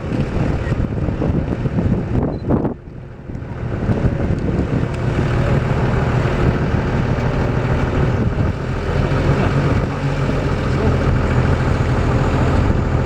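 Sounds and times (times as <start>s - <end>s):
motor droning: 0.0s - 13.0s
wind noise: 0.0s - 13.0s.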